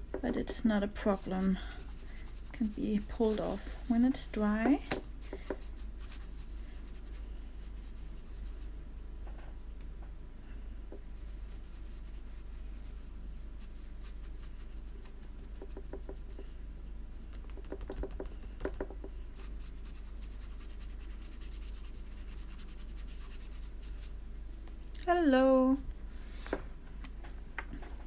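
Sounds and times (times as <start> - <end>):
low steady hum: 0.0 - 28.0
brush scratching on paper: 0.2 - 8.8, 11.1 - 16.8, 17.6 - 24.3
light taps: 4.6 - 5.6, 17.3 - 19.2.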